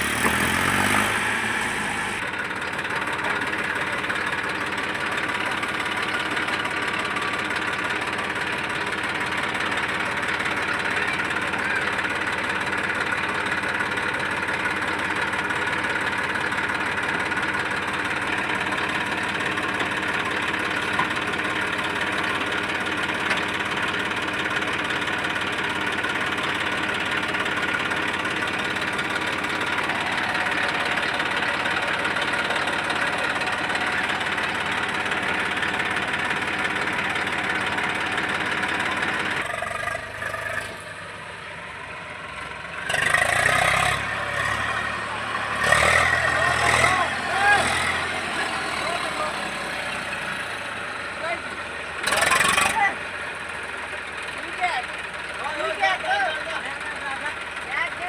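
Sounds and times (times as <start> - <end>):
tractor diesel engine chugging: 0.0 - 58.0.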